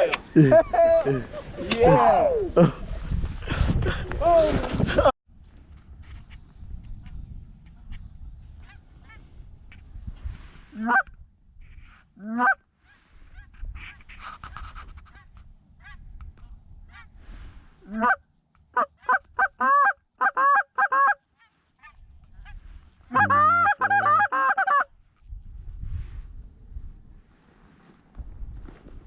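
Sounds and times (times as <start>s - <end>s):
goose honking: 23.1s - 24.8s.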